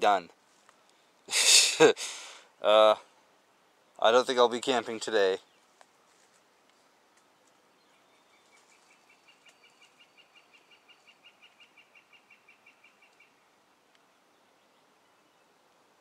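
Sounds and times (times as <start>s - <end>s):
songbird calling: 7.1s - 15.8s.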